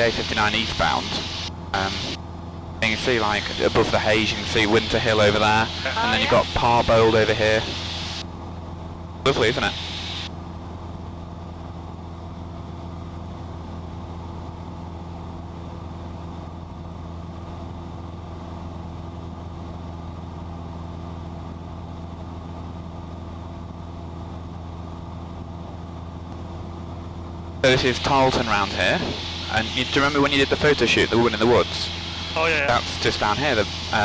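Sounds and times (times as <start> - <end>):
propeller plane engine droning: 0.0 - 34.0
rushing noise: 27.7 - 34.0.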